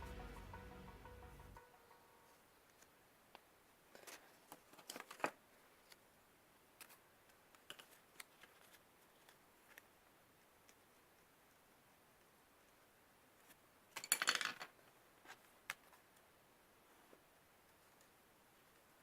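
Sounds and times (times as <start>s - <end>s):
paper rustling and creasing: 3.9s - 6.0s, 7.6s - 9.9s.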